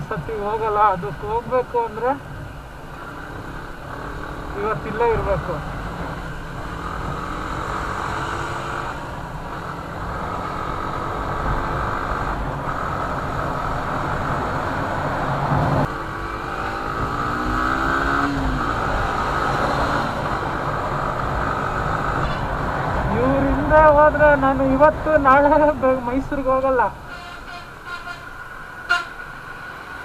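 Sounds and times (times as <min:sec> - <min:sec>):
road and wind noise: 0:00.0 - 0:30.0
vehicle engine accelerating: 0:02.8 - 0:26.0.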